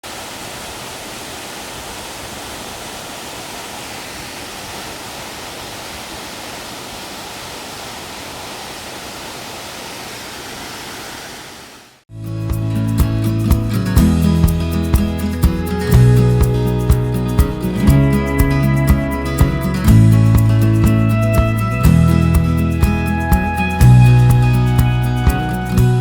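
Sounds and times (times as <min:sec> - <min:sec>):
waterfall rushing: 0:00.0 - 0:12.0, 0:13.0 - 0:26.0
acoustic guitar music: 0:12.1 - 0:26.0.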